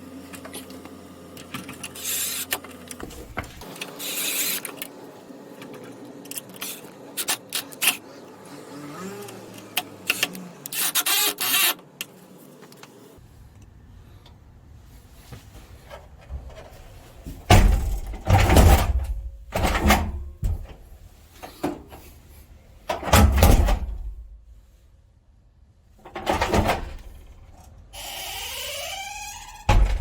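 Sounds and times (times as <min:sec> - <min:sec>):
heavy door opening and shutting: 0:02.0 - 0:03.7, 0:16.2 - 0:22.0, 0:22.9 - 0:24.3, 0:26.0 - 0:30.0
rising squeak: 0:28.0 - 0:30.0.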